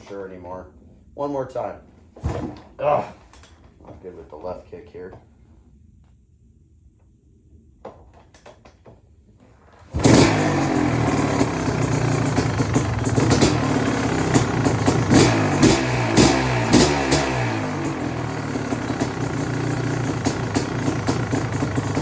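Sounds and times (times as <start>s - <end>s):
dirt bike engine revving: 9.9s - 22.0s.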